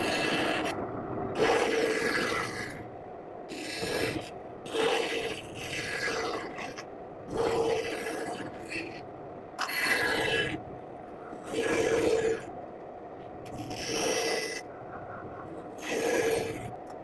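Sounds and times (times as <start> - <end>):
blade scraping wooden block: 3.5 - 9.0, 13.5 - 14.6.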